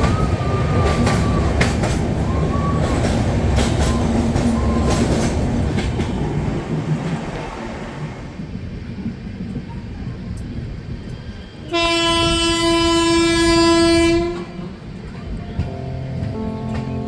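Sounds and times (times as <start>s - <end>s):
train rumbling: 0.0s - 17.0s
train horn: 11.6s - 14.8s.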